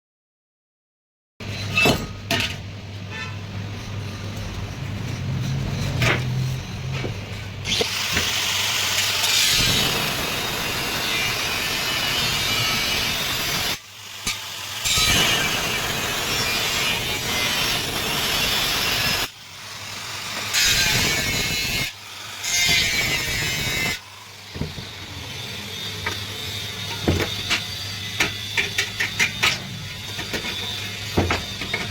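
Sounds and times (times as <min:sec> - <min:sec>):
tool cutting aluminium: 0:05.1 - 0:31.9.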